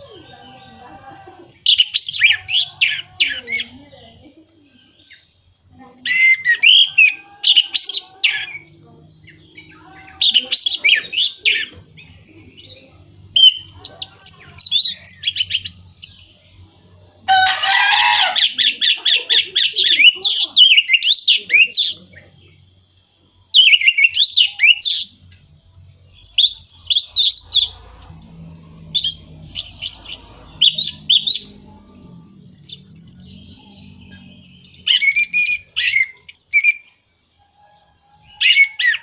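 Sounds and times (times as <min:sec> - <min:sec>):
harsh bird chattering: 0:17.3 - 0:22.2
thrush singing: 0:23.6 - 0:39.0.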